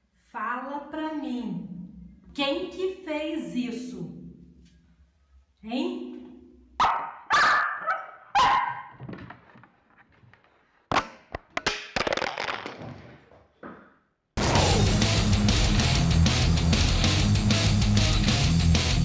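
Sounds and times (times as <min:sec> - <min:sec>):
dog barking loudly: 0:06.8 - 0:09.0
sharp knocks and clatter: 0:08.9 - 0:14.0
electric guitar rock music: 0:14.4 - 0:19.0.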